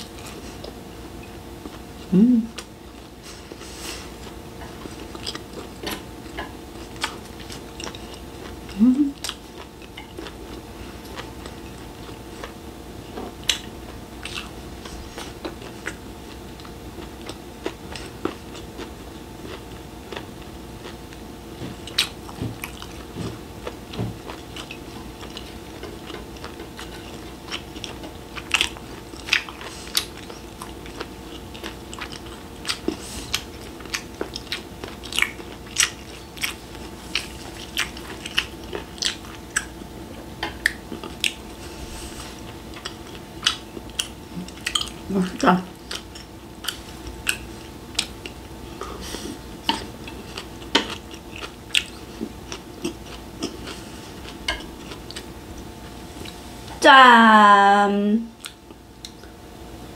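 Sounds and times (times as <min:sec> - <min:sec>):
close chewing: 0:00.0 - 0:56.5, 0:58.4 - 0:59.4
faint steady hum: 0:00.0 - 0:59.9
person humming mm: 0:02.0 - 0:02.7, 0:08.7 - 0:09.3.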